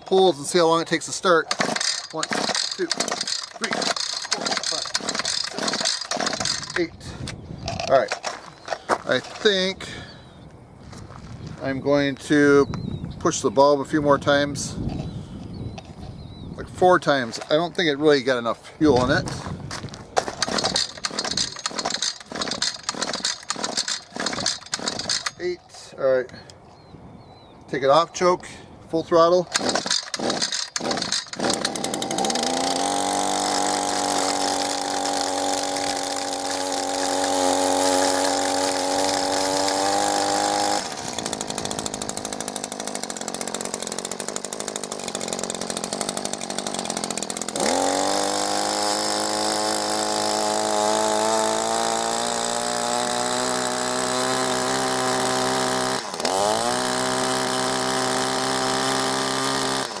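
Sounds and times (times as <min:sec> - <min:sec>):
string trimmer engine running: 0:00.0 - 0:10.1, 0:20.2 - 0:25.6, 0:29.4 - 1:00.0.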